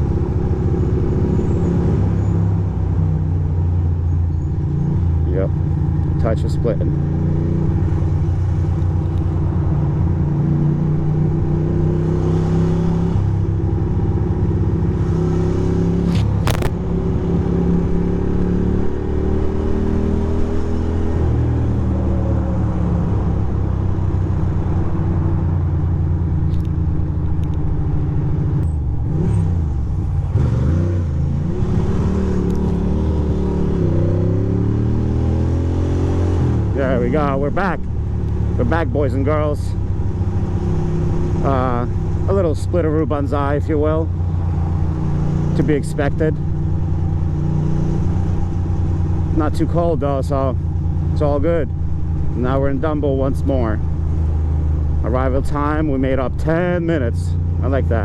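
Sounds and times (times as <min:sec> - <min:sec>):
motorcycle engine running: 0:15.9 - 0:20.7.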